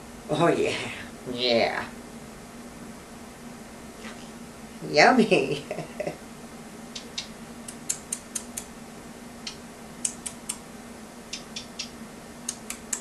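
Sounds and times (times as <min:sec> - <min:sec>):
faint steady hum: 0:00.0 - 0:13.0
parrot's beak clicking: 0:07.0 - 0:08.7, 0:09.5 - 0:10.6, 0:11.3 - 0:13.0.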